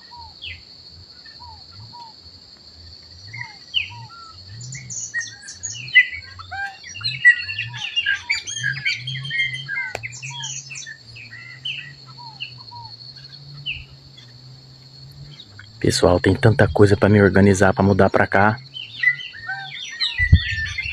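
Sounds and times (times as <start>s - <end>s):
high-pitched insect buzz: 0.0s - 20.9s
songbirds chirping and whistling: 0.0s - 20.9s.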